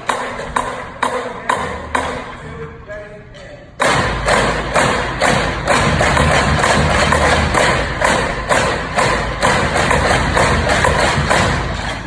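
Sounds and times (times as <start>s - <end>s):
snare drum strokes: 3.8s - 12.0s.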